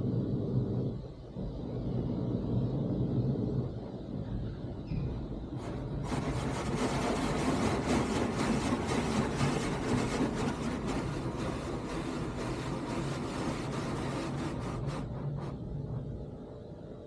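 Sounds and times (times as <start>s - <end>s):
low machinery hum: 0.0s - 17.0s
car wash spray rushing: 5.5s - 15.9s.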